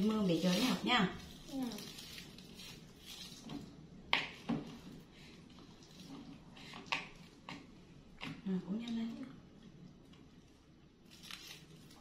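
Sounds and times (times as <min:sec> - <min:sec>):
plastic straw clicks and crinkles: 0:11.0 - 0:12.0.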